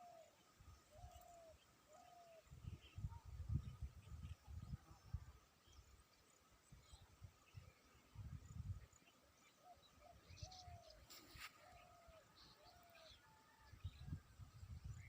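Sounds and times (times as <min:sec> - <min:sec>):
faint bird calls: 0:00.0 - 0:04.4, 0:09.0 - 0:14.1.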